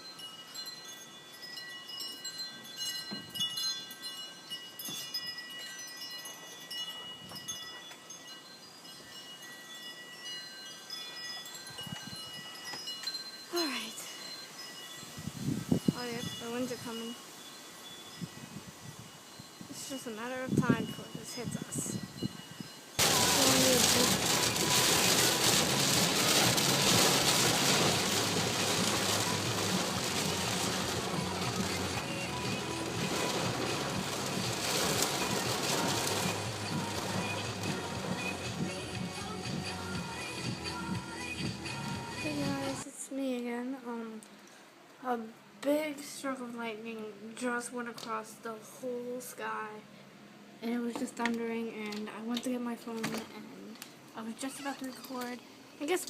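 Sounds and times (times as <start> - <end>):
wind chimes ringing: 0.0 - 38.8
gusting wind: 10.5 - 12.7, 14.0 - 39.8
heavy rain hissing: 23.0 - 42.8.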